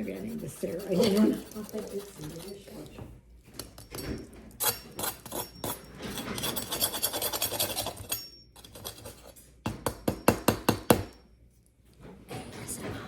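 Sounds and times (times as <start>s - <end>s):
knife sawing bread crust: 0.0s - 2.6s, 6.4s - 8.0s.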